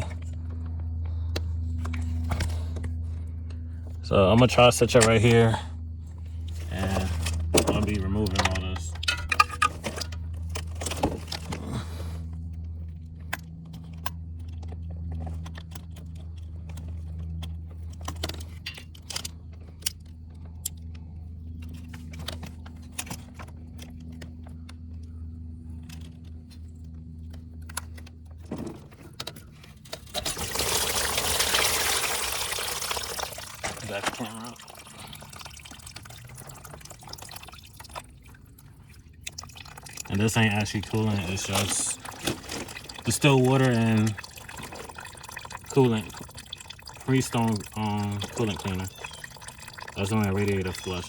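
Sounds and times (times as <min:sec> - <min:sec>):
steady low hum: 0:00.0 - 0:51.0
liquid gushing from hose: 0:30.1 - 0:51.0.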